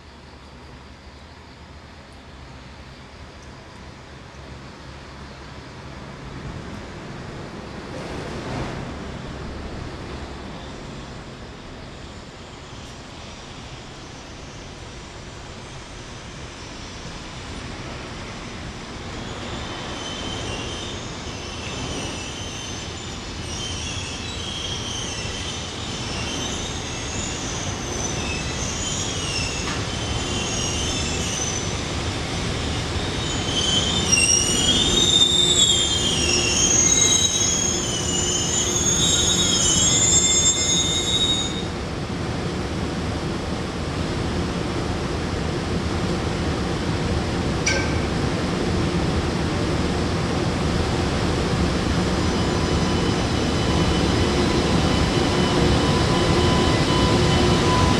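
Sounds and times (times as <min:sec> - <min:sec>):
train rumble: 0:00.0 - 0:57.9
train wheels squealing: 0:09.4 - 0:41.9, 0:47.6 - 0:48.4, 0:51.4 - 0:57.9.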